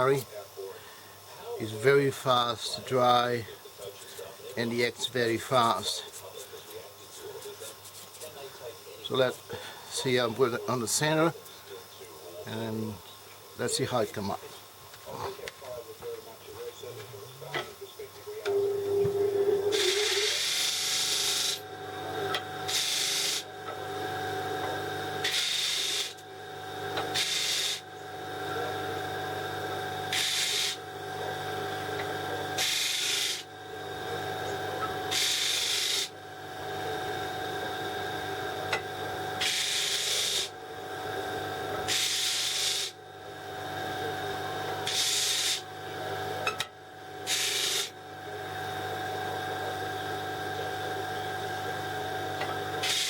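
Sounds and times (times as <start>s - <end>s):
wood lathe running: 18.5s - 53.0s
tool hissing against spinning wood: 19.1s - 43.7s, 44.5s - 45.8s, 47.2s - 48.6s, 51.2s - 53.0s.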